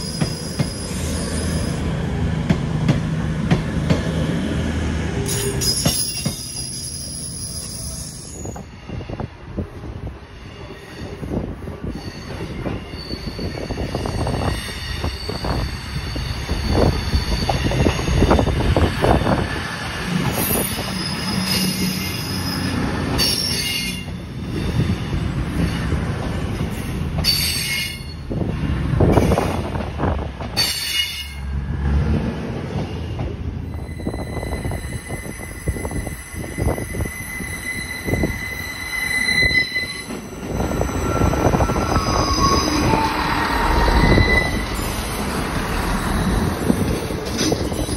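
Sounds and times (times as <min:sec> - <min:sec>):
high-pitched wheel squeals: 0:00.0 - 0:01.8, 0:05.3 - 0:09.2, 0:10.6 - 0:18.6, 0:20.3 - 0:24.9, 0:33.7 - 0:47.9
train engines and wheels rumbling: 0:00.0 - 0:47.9.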